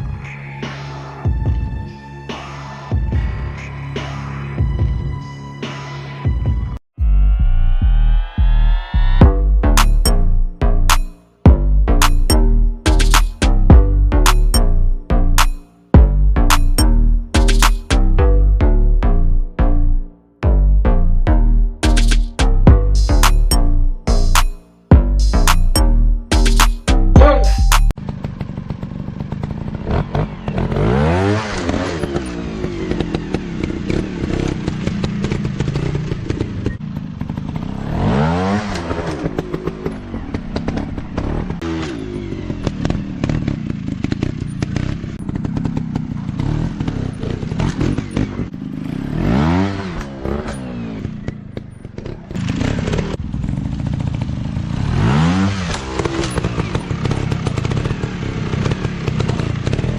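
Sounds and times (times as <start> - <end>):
dirt bike engine revving: 25.0 - 59.9.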